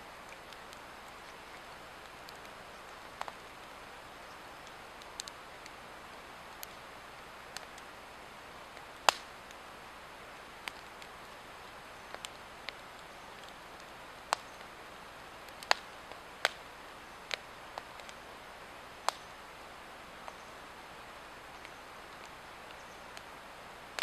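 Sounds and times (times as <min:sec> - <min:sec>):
log fire crackling and hissing: 0:00.0 - 0:24.0.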